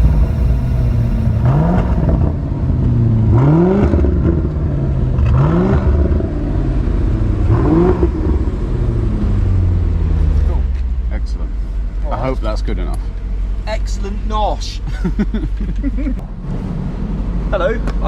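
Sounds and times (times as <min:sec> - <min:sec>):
car engine revving: 0:00.0 - 0:10.6
engine running drone: 0:00.0 - 0:10.7.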